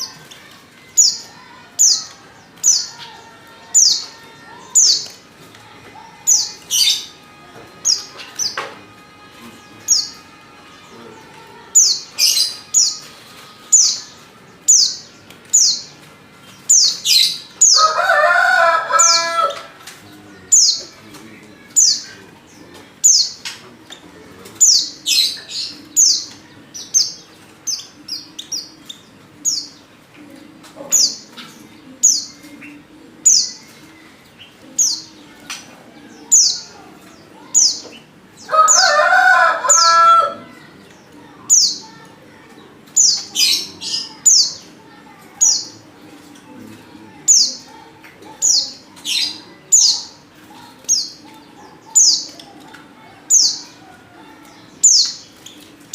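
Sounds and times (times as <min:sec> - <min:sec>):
bird chirping high: 0:09.4 - 0:15.9.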